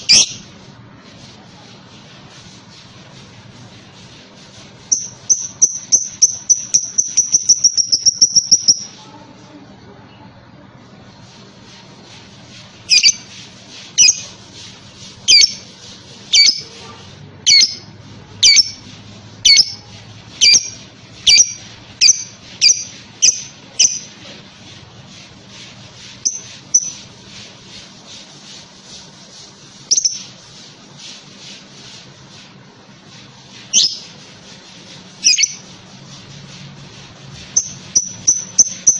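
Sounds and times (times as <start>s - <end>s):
lovebird squawking: 0.0s - 0.4s, 16.4s - 16.7s.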